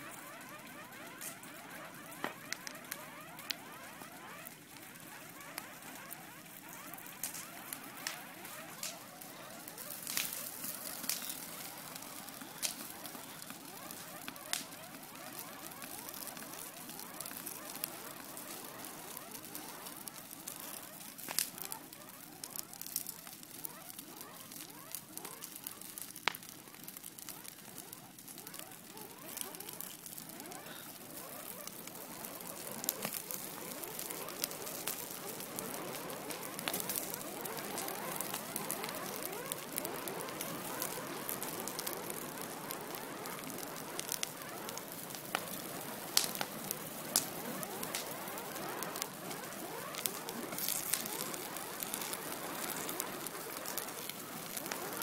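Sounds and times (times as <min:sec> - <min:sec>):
fire crackling and popping: 0:00.0 - 0:55.0.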